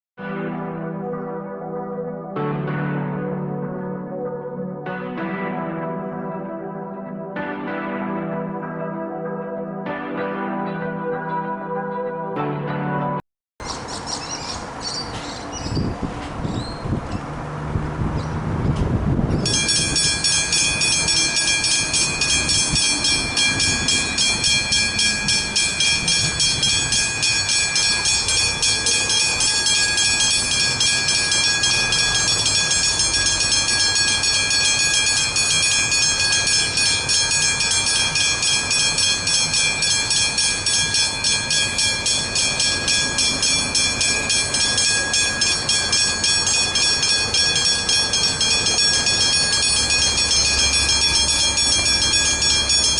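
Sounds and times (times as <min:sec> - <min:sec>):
level crossing warning bells ringing: 0:19.4 - 0:52.9.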